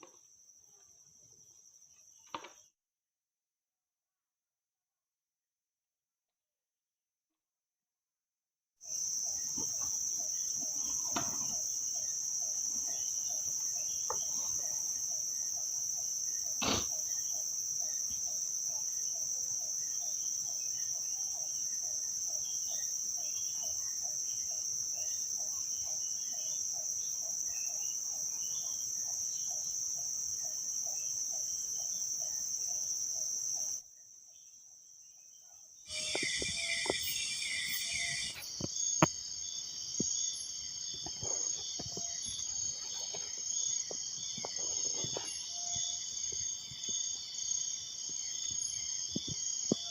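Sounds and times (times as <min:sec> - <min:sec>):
insects droning: 0:00.0 - 0:02.8, 0:08.8 - 0:49.9
low pulsing insect call: 0:00.0 - 0:02.8, 0:08.8 - 0:49.9
loud buzzing insect chorus: 0:35.9 - 0:49.9.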